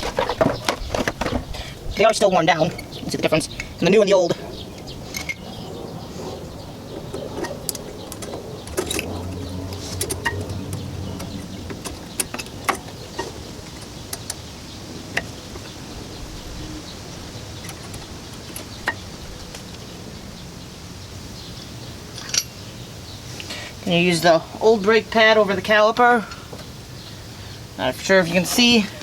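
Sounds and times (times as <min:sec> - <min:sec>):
low hum: 0:00.0 - 0:22.9.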